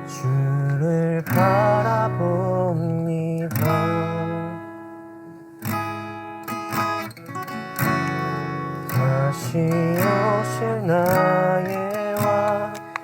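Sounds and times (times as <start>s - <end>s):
person singing: 0.0s - 4.7s, 8.9s - 13.0s
acoustic guitar strumming: 0.0s - 13.0s.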